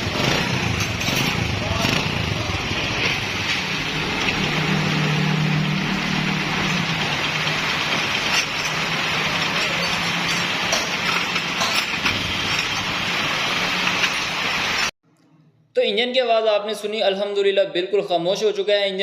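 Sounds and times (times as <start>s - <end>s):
motorcycle engine idling: 0.0s - 3.0s.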